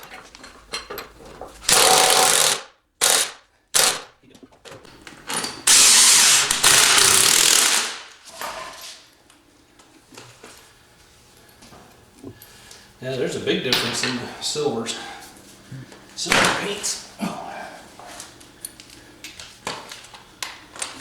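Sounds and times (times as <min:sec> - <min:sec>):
pneumatic impact wrench: 0:01.7 - 0:04.1, 0:05.6 - 0:08.2.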